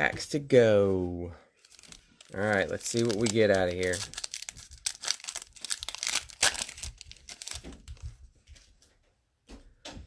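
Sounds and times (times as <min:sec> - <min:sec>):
cellophane wrapper crinkling: 0:01.6 - 0:08.6.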